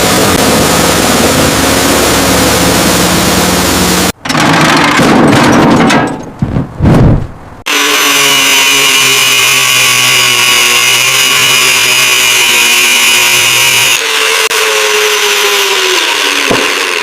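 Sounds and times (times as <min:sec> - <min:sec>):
power tool whining: 0:07.7 - 0:17.0.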